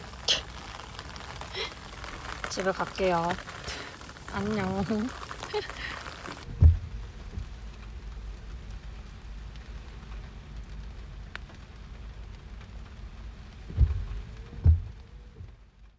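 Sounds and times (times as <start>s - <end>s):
rain on car roof: 0.0s - 15.9s
dull thump: 6.4s - 7.5s, 13.7s - 15.0s.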